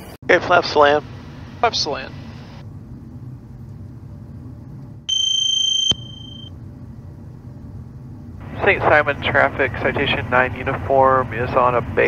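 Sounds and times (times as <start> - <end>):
jet cockpit noise: 0.0 - 12.0
high electronic warning beep: 5.1 - 6.5.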